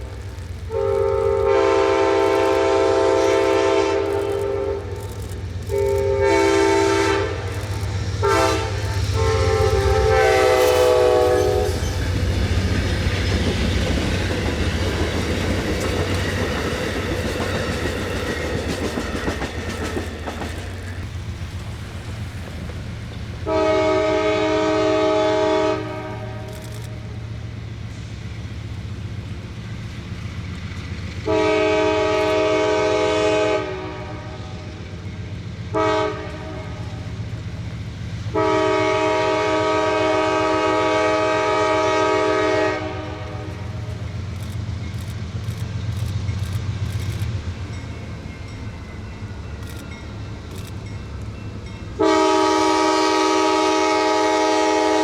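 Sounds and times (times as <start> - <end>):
passing train rumble: 0.0 - 55.0
locomotive air horn: 0.7 - 12.0, 23.4 - 27.2, 31.2 - 34.7, 35.7 - 37.1, 38.3 - 44.0, 52.0 - 55.0.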